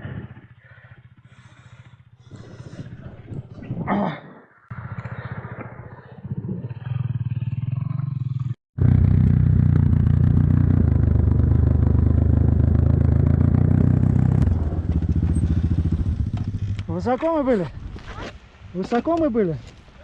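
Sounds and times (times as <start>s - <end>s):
motorcycle engine running: 0.0s - 2.7s, 6.7s - 17.0s.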